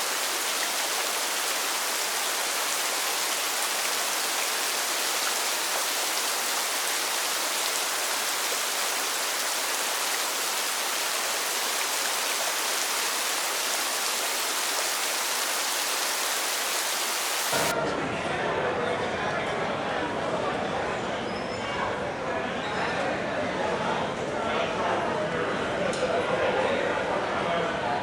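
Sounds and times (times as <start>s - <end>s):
hiss of falling water: 0.0s - 17.7s.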